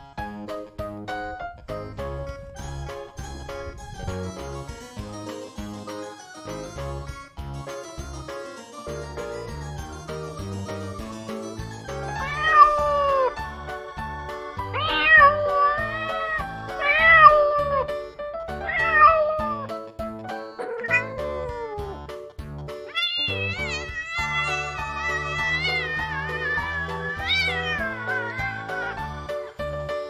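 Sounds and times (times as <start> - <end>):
keyboard music: 0.0 - 30.0
cat meowing: 12.2 - 13.1, 22.9 - 29.1.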